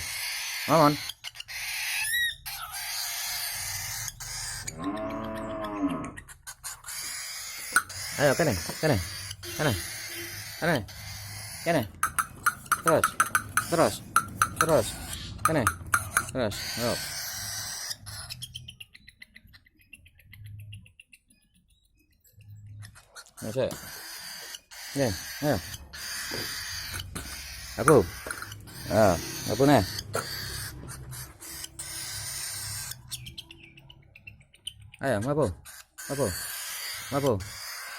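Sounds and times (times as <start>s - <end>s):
bird chirping: 0.0s - 37.9s
light taps: 11.9s - 14.9s, 15.5s - 16.3s.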